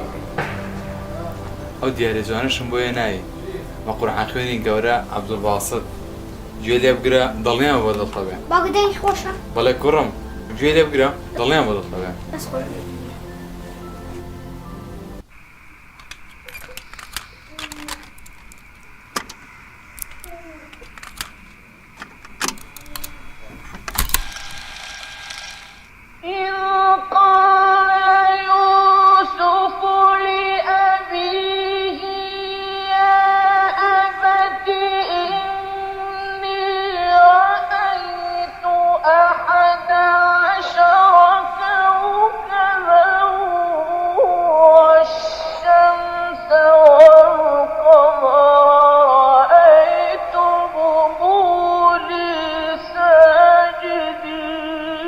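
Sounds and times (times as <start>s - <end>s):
high voice chanting: 0.0s - 14.3s, 26.2s - 55.0s.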